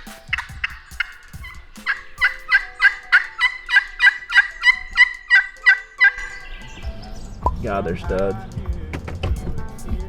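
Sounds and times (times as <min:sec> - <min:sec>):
turkey call yelps: 0:00.0 - 0:07.6.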